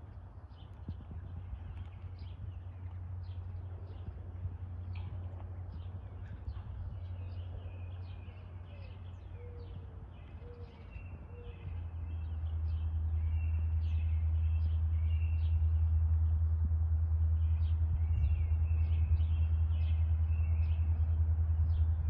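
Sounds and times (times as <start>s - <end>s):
birds chirping: 0.5s - 15.6s.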